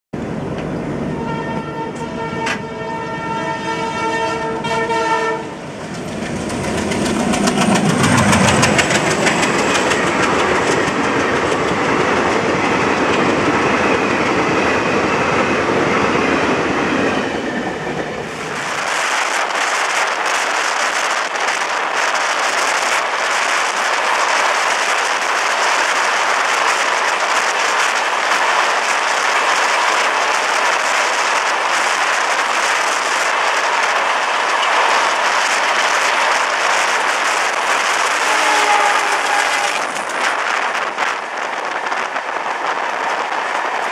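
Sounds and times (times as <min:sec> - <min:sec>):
rush and rattle inside moving train: 0:00.2 - 0:43.9
diesel locomotive horn: 0:00.9 - 0:05.6, 0:38.1 - 0:40.1
train wheels clattering: 0:05.7 - 0:15.5.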